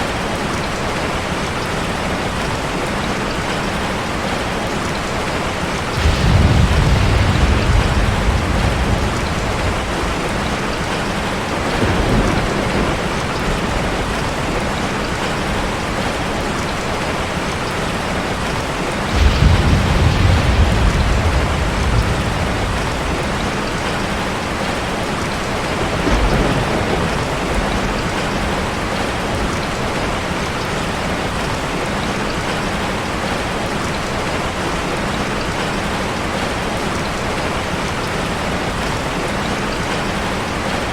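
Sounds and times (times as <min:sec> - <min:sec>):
heavy rain hitting a car: 0:00.0 - 0:40.9
thunder rolling: 0:05.9 - 0:16.3, 0:18.9 - 0:30.4.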